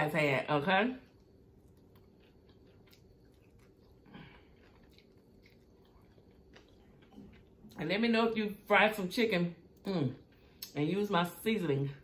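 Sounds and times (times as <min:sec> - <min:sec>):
faint chewing and crunching: 0:00.2 - 0:08.4.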